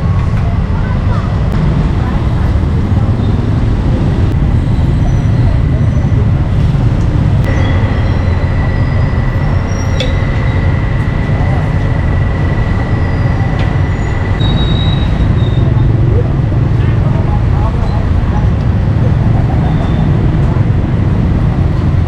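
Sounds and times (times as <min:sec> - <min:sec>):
busy street market ambience: 0:00.0 - 0:22.0
steady low rumble: 0:00.0 - 0:22.0
thin steady high tone: 0:07.4 - 0:16.6.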